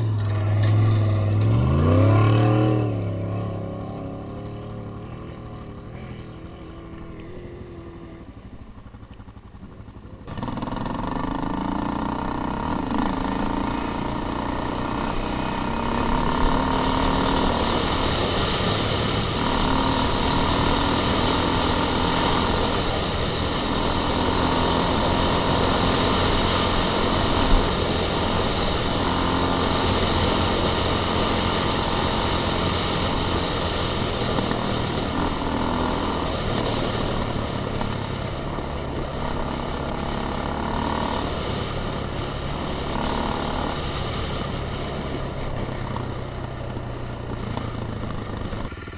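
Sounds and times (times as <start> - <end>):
off-road vehicle engine revving: 0.0 - 8.4, 10.3 - 48.9.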